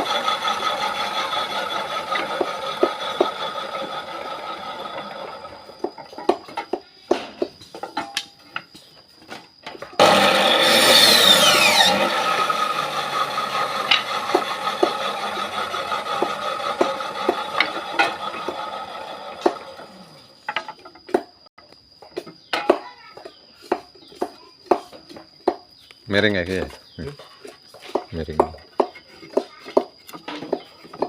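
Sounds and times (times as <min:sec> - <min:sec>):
power tool cutting wood: 0:00.0 - 0:05.9, 0:10.0 - 0:20.4.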